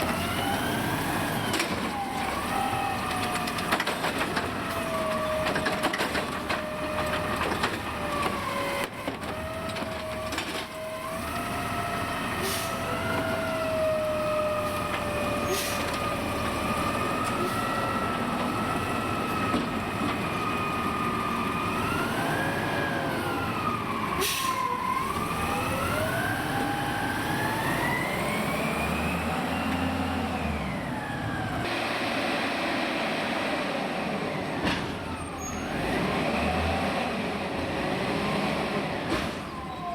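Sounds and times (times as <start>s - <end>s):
garbage truck engine revving: 11.0s - 34.6s, 35.4s - 39.4s.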